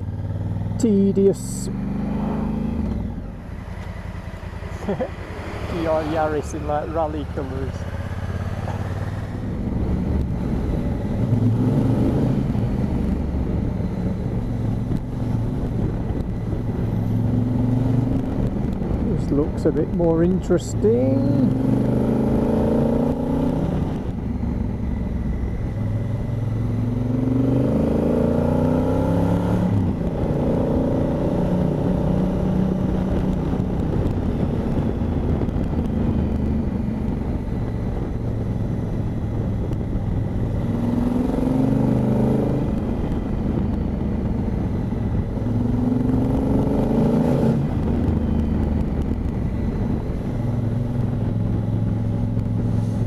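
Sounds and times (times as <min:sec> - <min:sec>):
motorcycle engine accelerating: 0:00.0 - 0:53.0
wind rush: 0:05.7 - 0:19.6, 0:29.6 - 0:53.0.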